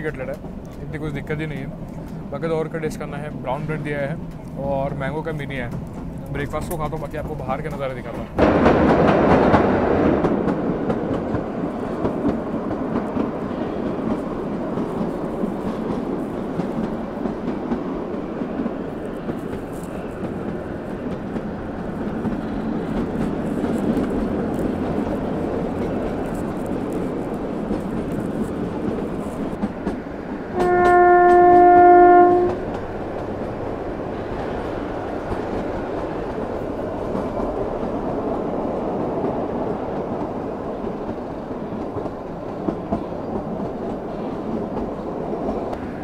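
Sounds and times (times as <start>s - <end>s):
train wheels rumbling on rail: 0.0s - 46.0s
locomotive horn: 30.5s - 32.8s.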